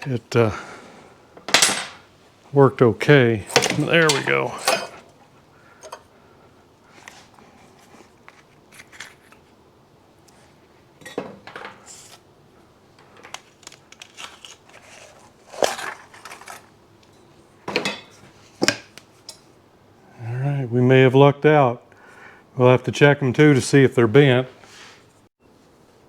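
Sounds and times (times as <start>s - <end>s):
metal tools clinking and knocking: 3.5s - 5.1s, 5.8s - 6.1s.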